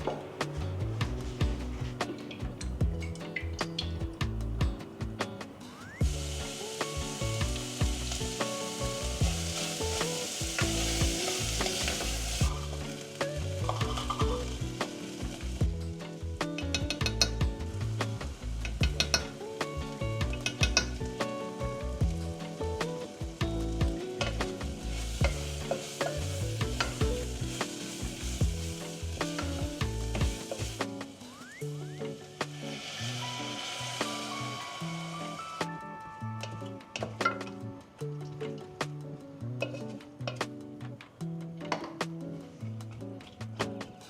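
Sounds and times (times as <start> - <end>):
food sizzling in a pan: 5.8 - 37.6.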